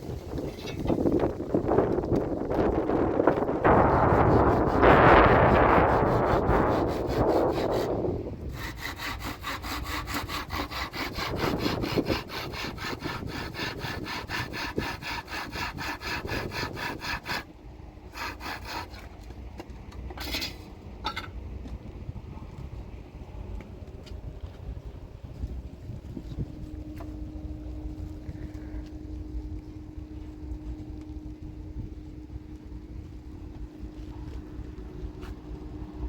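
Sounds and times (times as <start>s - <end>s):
hand saw cutting wood: 3.3s - 17.5s, 18.1s - 19.2s.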